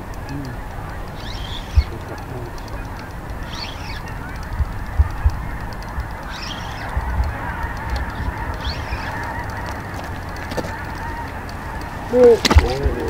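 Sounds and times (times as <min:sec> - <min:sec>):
birds calling: 0:00.0 - 0:13.0
wind rumble on microphone: 0:00.0 - 0:13.0.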